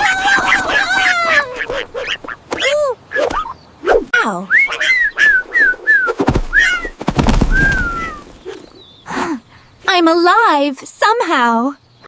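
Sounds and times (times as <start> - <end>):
swooping whistle tones: 3.9 - 6.9, 7.5 - 8.2
low thud: 6.2 - 8.0.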